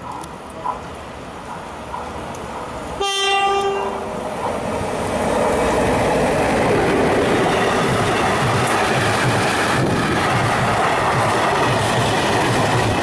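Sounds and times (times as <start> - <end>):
train rumble and wheel clatter: 0.0 - 13.0
locomotive horn blast: 3.0 - 4.1.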